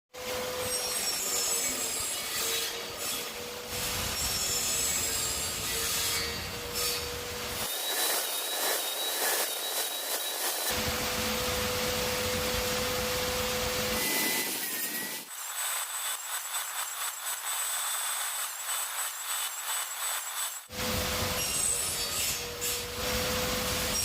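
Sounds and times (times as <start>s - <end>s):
power saw cutting plywood: 0.2s - 24.0s
high whine: 7.6s - 21.1s.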